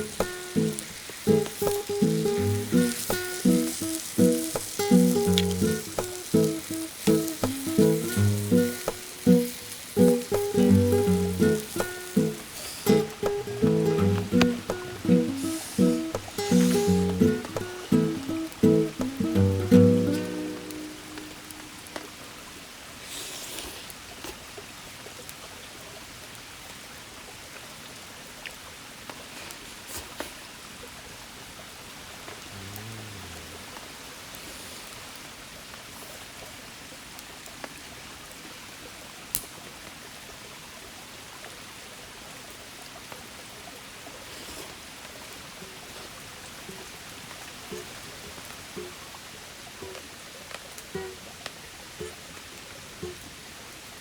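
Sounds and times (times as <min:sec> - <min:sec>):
faint clicks: 0:00.0 - 0:19.3
river running over rocks: 0:00.0 - 0:23.1.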